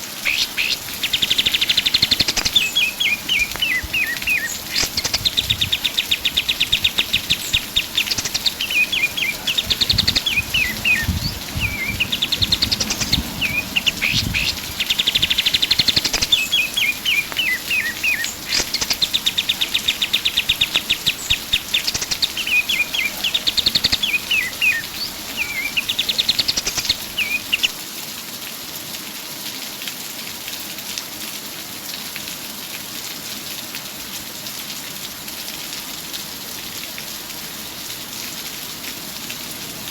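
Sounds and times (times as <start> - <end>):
steady rain-like hiss: 0.0 - 39.9
songbird singing trills: 0.2 - 27.8.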